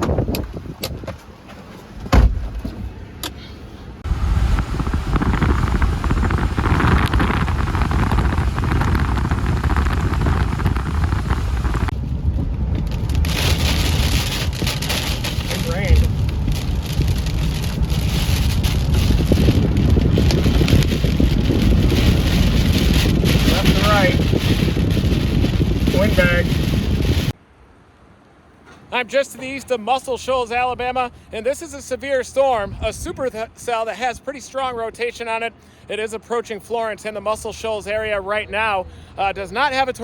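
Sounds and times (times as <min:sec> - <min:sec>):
knocks and thumps inside vehicle: 0:00.0 - 0:03.4, 0:04.0 - 0:27.2
deep rumble: 0:04.0 - 0:27.4
rush of wind and rain: 0:04.0 - 0:27.4.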